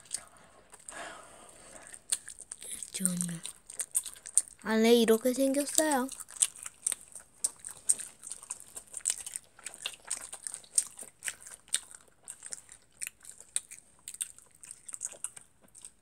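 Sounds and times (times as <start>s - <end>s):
person chewing food: 0.0s - 4.6s, 5.5s - 16.0s.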